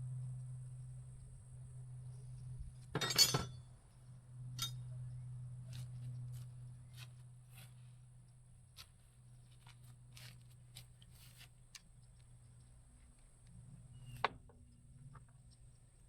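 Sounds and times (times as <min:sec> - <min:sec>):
steady low hum: 0:00.0 - 0:16.0
metal pieces clinking and clattering: 0:03.0 - 0:03.5.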